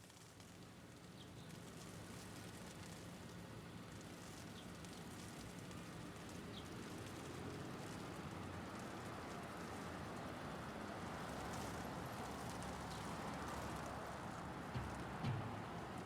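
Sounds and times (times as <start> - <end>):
hail pattering: 1.9 - 16.0
city traffic rumble: 3.1 - 16.0.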